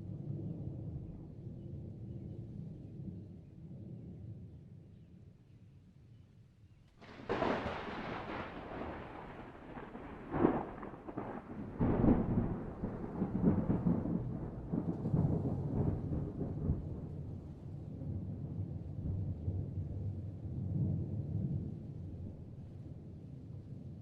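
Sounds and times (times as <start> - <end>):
thunder crack: 7.0 - 17.1
rolling thunder rumble: 7.0 - 23.7.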